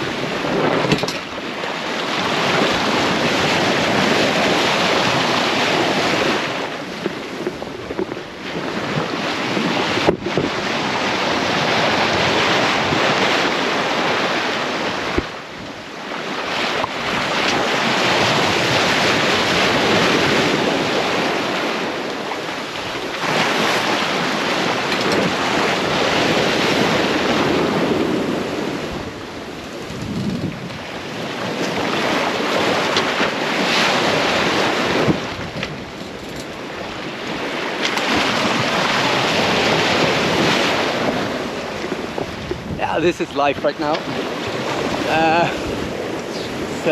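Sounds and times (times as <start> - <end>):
sea water washing: 0.0 - 46.9
wind buffeting microphone: 0.0 - 46.9.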